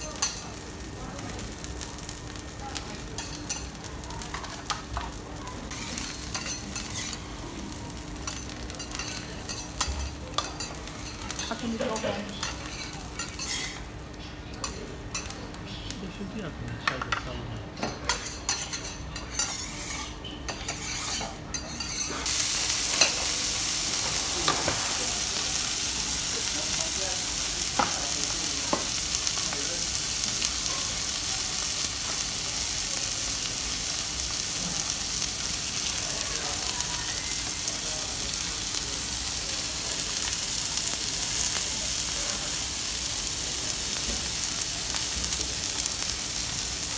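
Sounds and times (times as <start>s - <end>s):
meat sizzling on hot plate: 0.0s - 15.6s, 18.0s - 46.9s
spatulas scraping on griddle: 5.7s - 7.3s, 8.2s - 13.8s, 18.1s - 23.4s.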